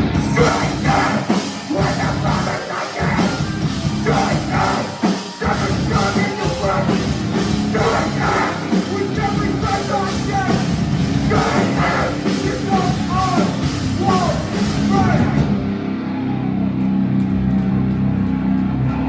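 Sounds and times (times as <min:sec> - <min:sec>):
punk band playing live: 0:00.0 - 0:19.0.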